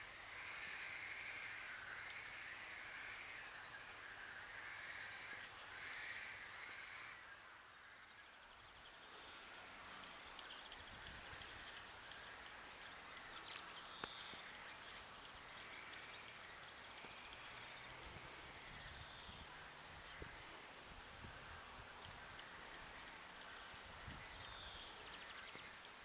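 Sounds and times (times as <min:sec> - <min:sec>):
faint outdoor hiss: 0:00.0 - 0:26.0
small birds chirping: 0:00.4 - 0:20.8, 0:21.4 - 0:26.0
faint click: 0:13.5 - 0:14.3.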